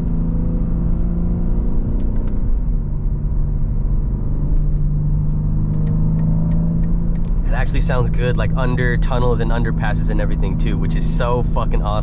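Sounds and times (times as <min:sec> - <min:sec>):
car engine droning at cruise: 0:00.0 - 0:12.0.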